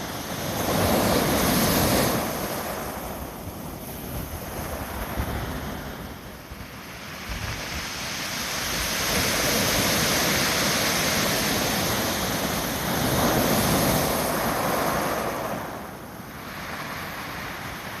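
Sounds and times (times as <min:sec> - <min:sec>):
wind buffeting microphone: 0:00.0 - 0:16.1
heavy surf waves breaking: 0:00.0 - 0:18.0.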